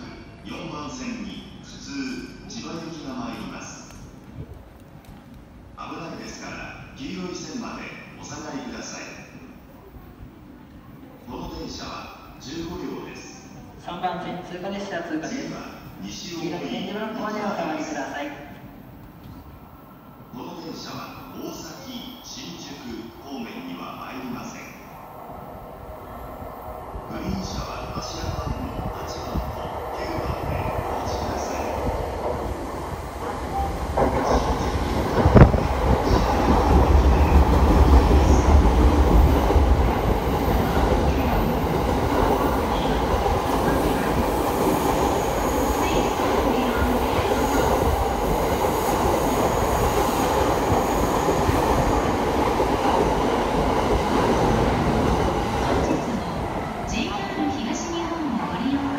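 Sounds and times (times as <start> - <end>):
train rumbling past on rails: 17.5 - 58.9.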